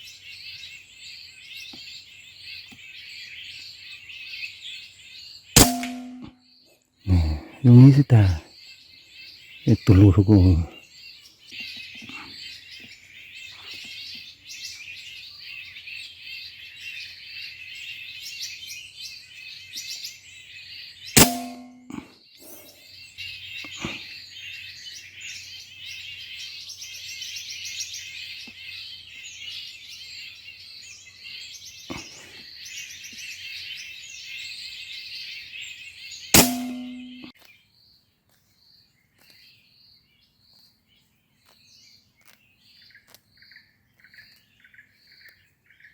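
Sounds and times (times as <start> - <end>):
air rifle shot crack: 5.6 - 6.3, 21.2 - 22.0, 36.4 - 37.2.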